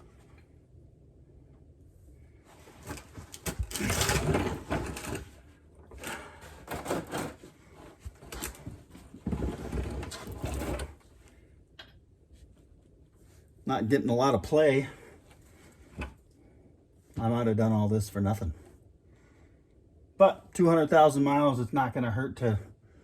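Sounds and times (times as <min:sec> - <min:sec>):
axle parts clunking and rattling: 0:02.7 - 0:11.0.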